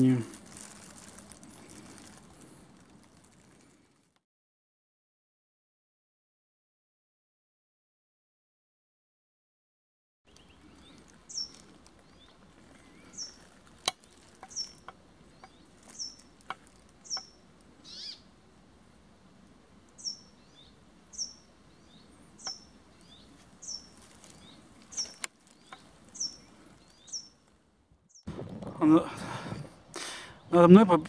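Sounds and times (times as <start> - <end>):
small bird calling: 10.3 - 18.3, 19.9 - 27.5.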